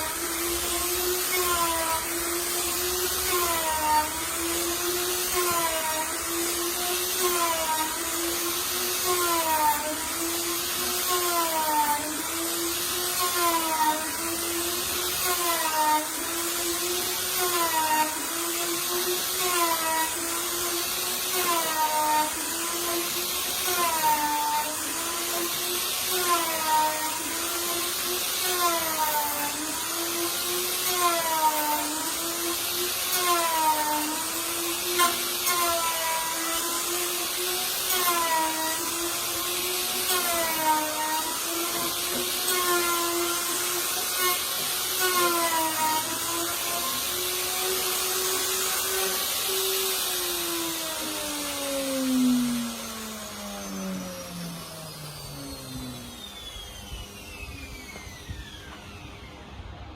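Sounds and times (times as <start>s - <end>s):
router winding down: 0.0s - 59.9s
wood router motor whine: 0.0s - 59.9s.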